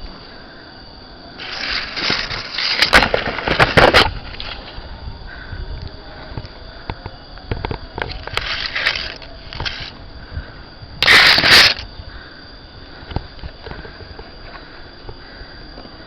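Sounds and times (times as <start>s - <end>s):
rustling: 1.4s - 4.9s.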